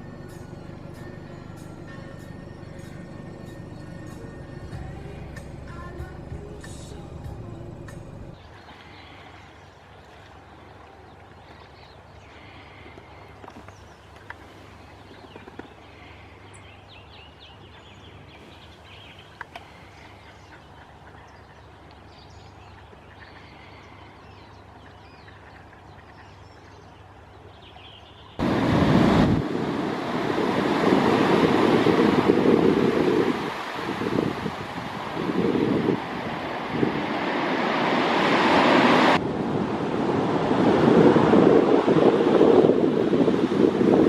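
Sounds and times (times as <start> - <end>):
wind noise on microphone: 28.4 - 44.0.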